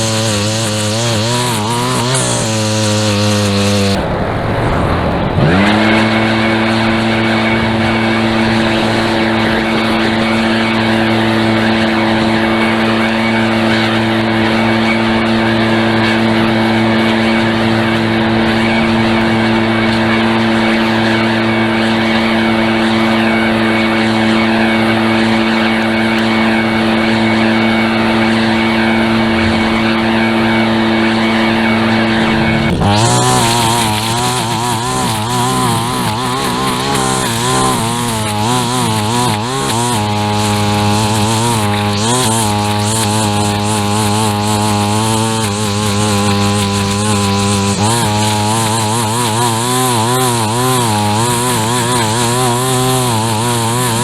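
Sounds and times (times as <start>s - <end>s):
hiss of cutting: 0.0s - 7.1s, 28.6s - 54.0s
small gas engine running: 0.0s - 54.0s.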